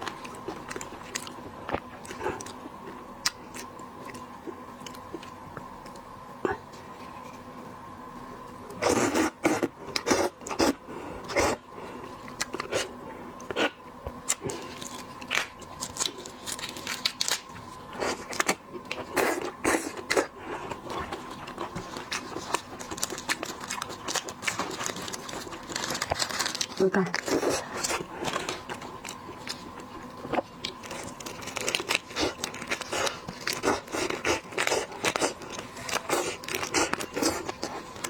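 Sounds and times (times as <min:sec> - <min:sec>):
faint steady hum: 0:00.0 - 0:38.0
eating sounds: 0:08.7 - 0:38.0.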